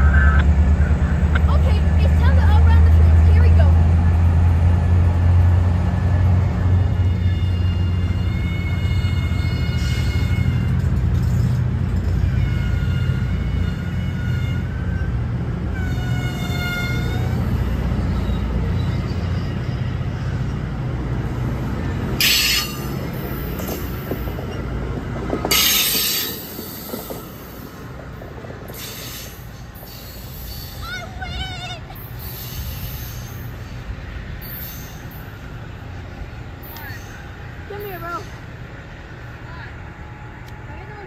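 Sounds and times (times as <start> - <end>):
train cars rumbling: 0.0 - 41.0
wheel squeal: 34.4 - 35.3.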